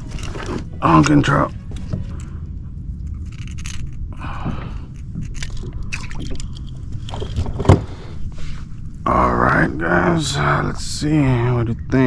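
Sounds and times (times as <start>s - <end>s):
handling noise scraping and rustling: 0.0s - 2.3s
steady low rumble: 0.0s - 12.0s.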